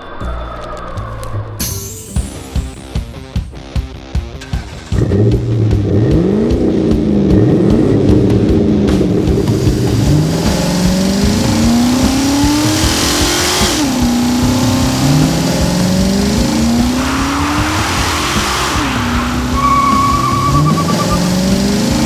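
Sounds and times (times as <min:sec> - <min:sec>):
car engine accelerating: 0:04.4 - 0:22.0
tyre noise hiss: 0:09.1 - 0:22.0.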